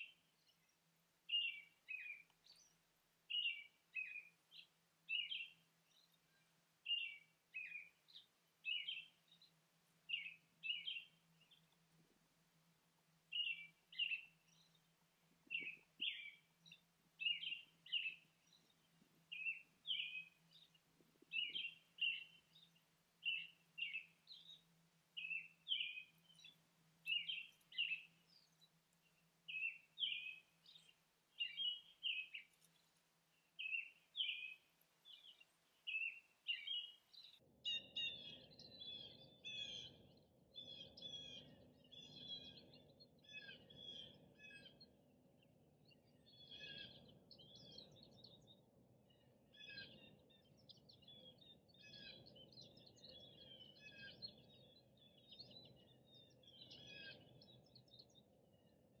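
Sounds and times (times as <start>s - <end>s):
songbird chorus: 0.0s - 59.0s
bird call: 25.2s - 28.2s.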